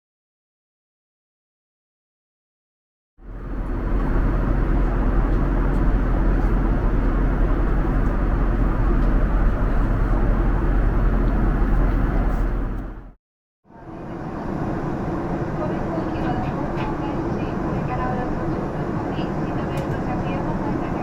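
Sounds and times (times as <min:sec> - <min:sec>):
vehicle rumble: 0:03.2 - 0:13.2.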